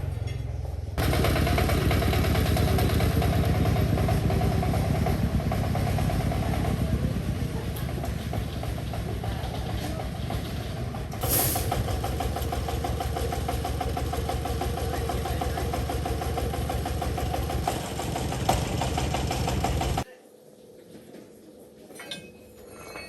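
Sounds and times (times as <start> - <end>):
engine running: 0.0 - 20.0
hiss burst: 11.2 - 12.8.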